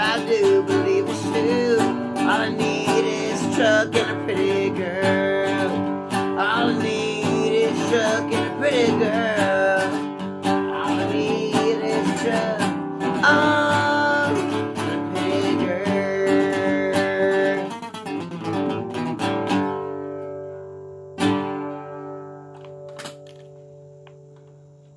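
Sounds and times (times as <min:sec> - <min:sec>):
wordless vocal: 0:00.0 - 0:17.7
acoustic guitar strumming: 0:00.0 - 0:24.9.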